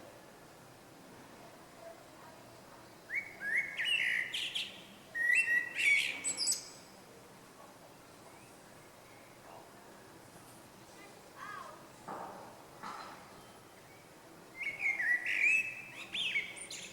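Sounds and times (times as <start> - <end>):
small songbird singing: 2.8 - 6.9, 13.3 - 16.9.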